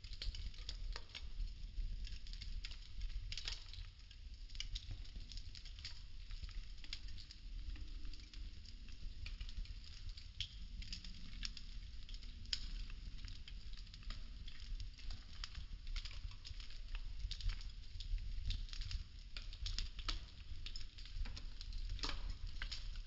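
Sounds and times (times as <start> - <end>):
burning wooden sticks crackling: 0.0 - 23.0.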